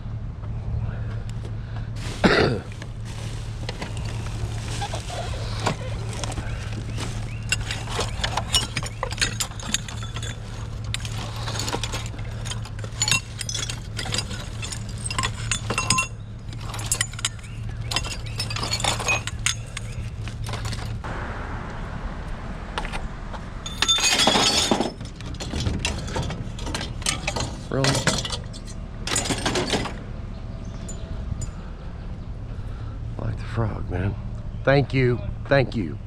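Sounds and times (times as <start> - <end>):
low hum: 0.0 - 35.7
scrap metal and glass clinking: 3.1 - 21.0, 23.6 - 30.0
metal crash: 5.7 - 30.1.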